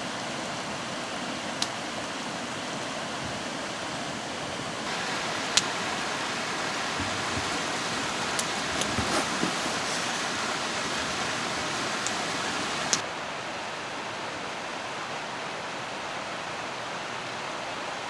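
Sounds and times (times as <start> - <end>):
stream rushing: 0.1 - 13.4.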